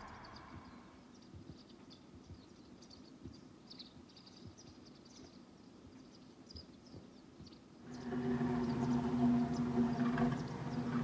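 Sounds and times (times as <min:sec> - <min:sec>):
low steady rumble: 0:00.0 - 0:01.0, 0:07.9 - 0:11.0
small birds chirping: 0:00.0 - 0:11.0.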